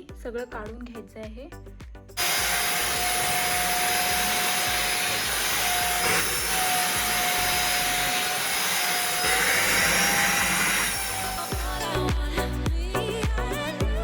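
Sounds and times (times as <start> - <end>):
vacuum cleaner running: 2.2 - 11.8.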